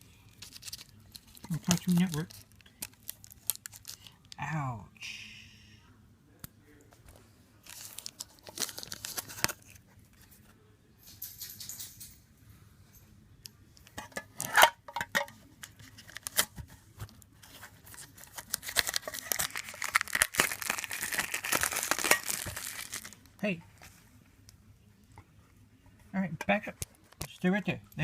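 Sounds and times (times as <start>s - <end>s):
packaging torn and crinkled: 0.3s - 4.2s, 7.6s - 9.8s, 16.0s - 16.5s, 17.8s - 23.3s.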